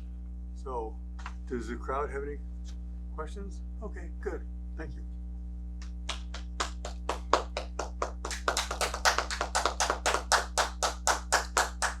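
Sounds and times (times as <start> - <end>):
audience clapping: 5.8 - 12.0.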